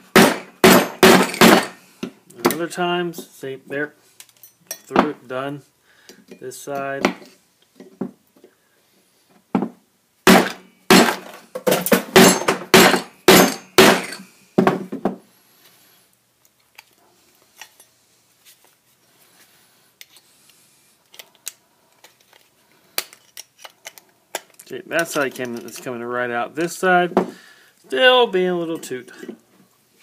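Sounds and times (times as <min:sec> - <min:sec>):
hammer striking metal: 0:00.0 - 0:01.8, 0:10.3 - 0:11.3, 0:11.9 - 0:14.2.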